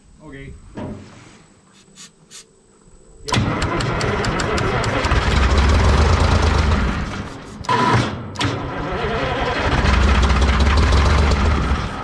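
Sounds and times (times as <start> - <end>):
diesel engine cranking: 3.3 - 12.0.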